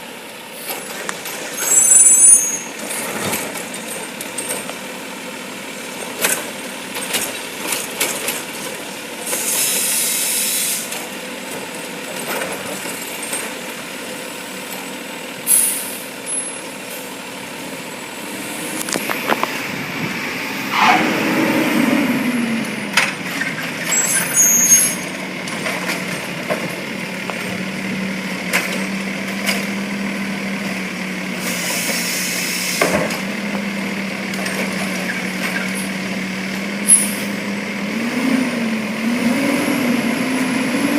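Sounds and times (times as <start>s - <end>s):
garbage truck engine: 0.0s - 40.9s
air brake hiss: 9.3s - 11.0s, 15.5s - 16.1s, 31.4s - 33.0s
rising and falling whine: 17.9s - 23.0s.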